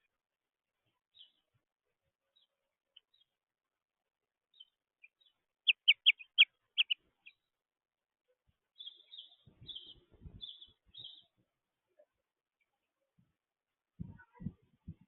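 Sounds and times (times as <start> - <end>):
small birds chirping: 0.9 - 1.5, 2.3 - 3.4, 4.5 - 7.5, 8.7 - 11.4
harsh scratchy bird calls: 5.7 - 7.0.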